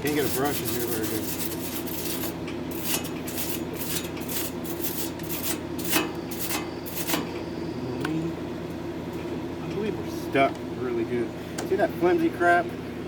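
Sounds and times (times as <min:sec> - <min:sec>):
wire brush scrubbing steel: 0:00.0 - 0:07.3
steady low hum: 0:00.0 - 0:13.0.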